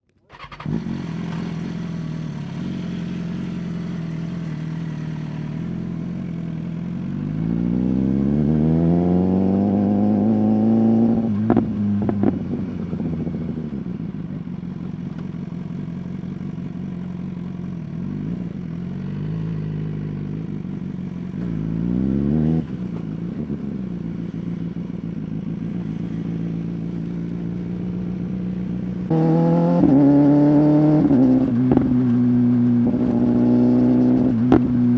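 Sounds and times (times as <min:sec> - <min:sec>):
motorcycle engine idling and revving: 0:00.2 - 0:34.9
exhaust cracks: 0:31.0 - 0:34.9.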